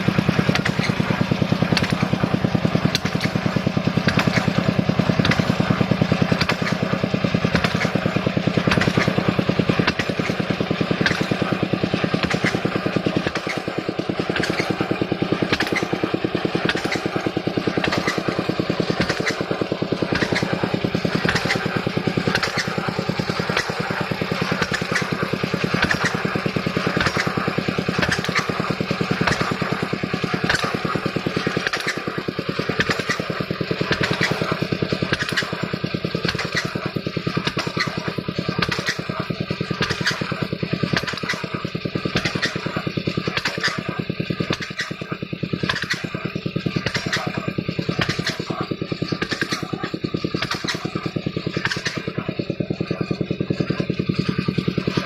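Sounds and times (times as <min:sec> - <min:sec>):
drilling rig engine running: 0:00.0 - 0:55.0
sharp knocks from rig: 0:08.7 - 0:55.0.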